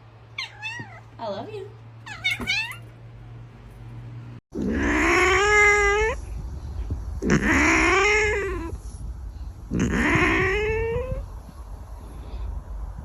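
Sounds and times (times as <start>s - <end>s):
cat yowling: 0.4s - 1.1s, 2.0s - 2.9s, 4.6s - 6.2s, 7.2s - 8.8s, 9.8s - 11.2s.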